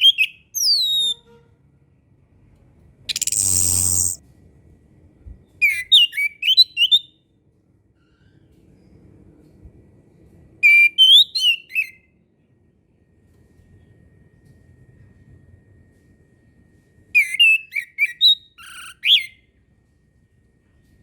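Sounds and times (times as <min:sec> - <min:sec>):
thrush singing whistled notes: 0:03.1 - 0:04.2.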